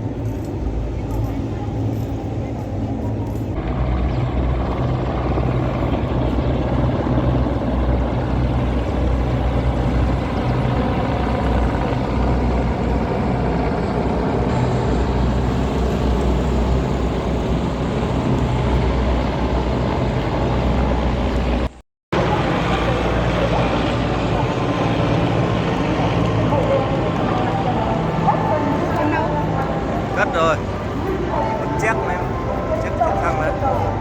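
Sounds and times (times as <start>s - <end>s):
vehicle engines rumbling: 0.0s - 34.0s.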